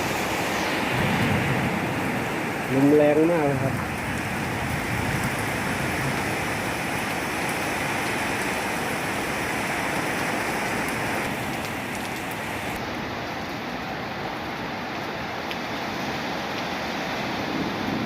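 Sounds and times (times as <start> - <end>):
strong wind blowing: 0.0 - 8.1
heavy rain pouring: 0.0 - 18.0.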